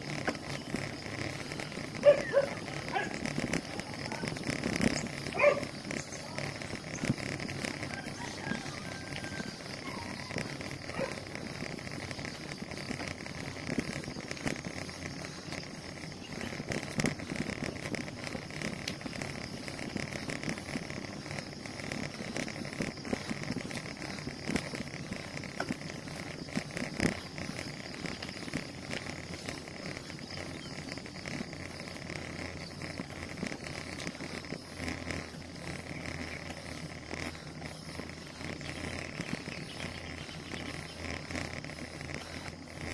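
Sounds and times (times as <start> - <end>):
bicycle clicks and rattles: 0.0 - 42.9.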